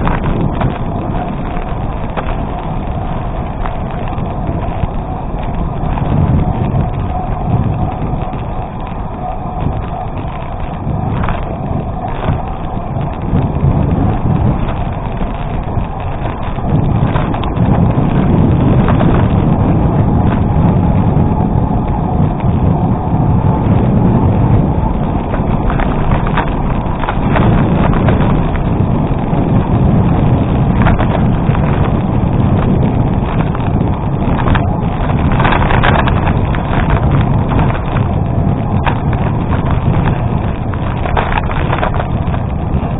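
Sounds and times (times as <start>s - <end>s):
bicycle tyres rumbling over gravel: 0.0s - 42.9s
wind buffeting microphone: 0.0s - 42.9s.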